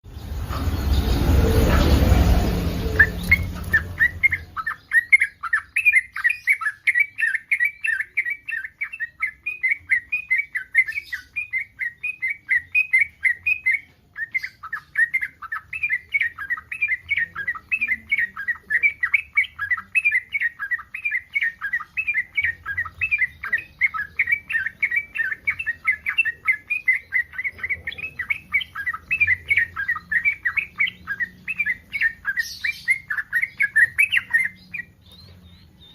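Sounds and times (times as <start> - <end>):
rush of noise: 0.1 - 4.6
bird chattering call: 0.2 - 35.8.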